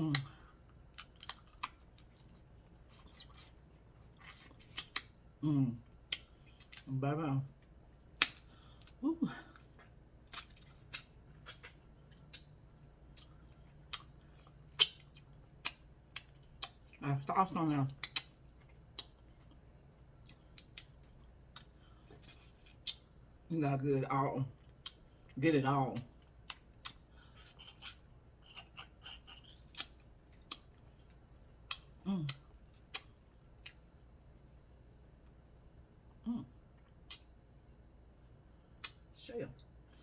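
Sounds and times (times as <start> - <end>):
wet chewing clicks and smacks: 4.2 - 5.2, 9.7 - 16.9, 17.9 - 23.1, 24.6 - 25.4, 26.0 - 33.9, 38.8 - 39.7.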